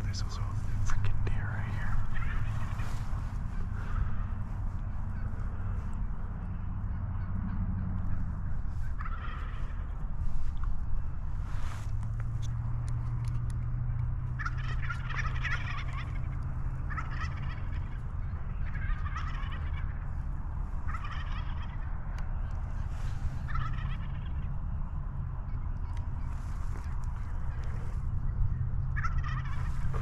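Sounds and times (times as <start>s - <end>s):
low rumble: 0.0s - 30.0s
turkeys gobbling: 1.6s - 9.9s, 14.3s - 21.9s, 22.7s - 24.5s, 28.9s - 30.0s.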